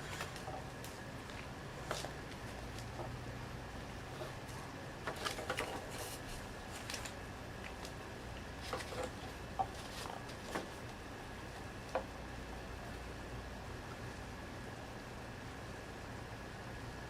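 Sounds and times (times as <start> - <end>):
low electrical hum: 0.0 - 17.0
objects being handled: 4.1 - 8.0, 8.6 - 10.8.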